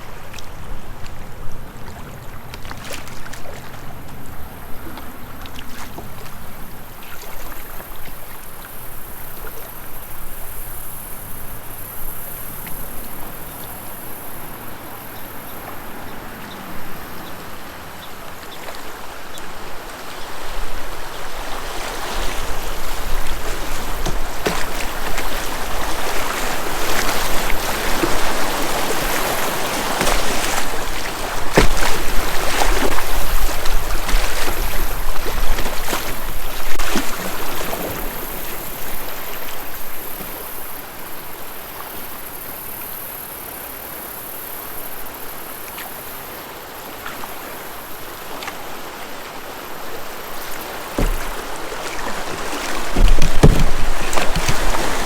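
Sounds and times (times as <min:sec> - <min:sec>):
creek water rushing: 0:00.0 - 0:42.5, 0:45.6 - 0:55.0
sharp splashes or knocks: 0:22.1 - 0:38.3, 0:50.6 - 0:55.0.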